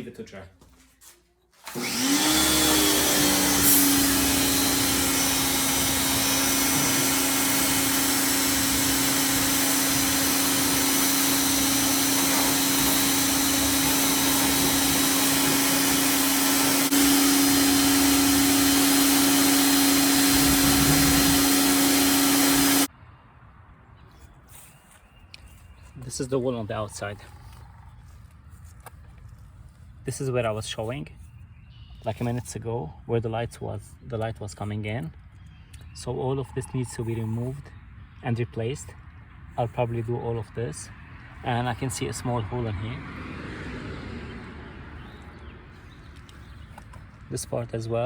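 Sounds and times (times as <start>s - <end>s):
pressure washer motor humming: 1.6s - 22.9s
loud hissing spray: 2.0s - 22.9s.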